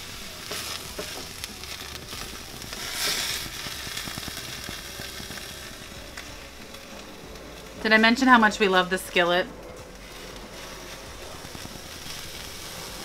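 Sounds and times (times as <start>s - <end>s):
vegetables sizzling in skillet: 0.0s - 13.0s
spatula scraping and tapping pan: 2.2s - 5.5s.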